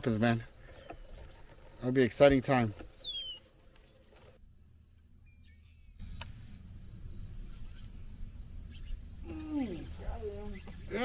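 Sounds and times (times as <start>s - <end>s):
high-pitched insect buzz: 5.2s - 11.0s
sharp click: 6.1s - 6.4s.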